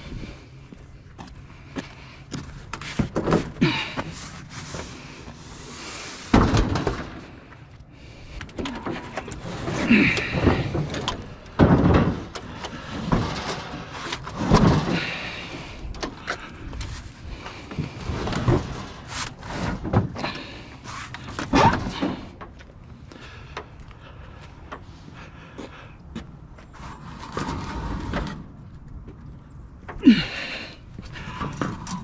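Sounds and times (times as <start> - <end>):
scrap metal clattering: 8.6 - 22.4.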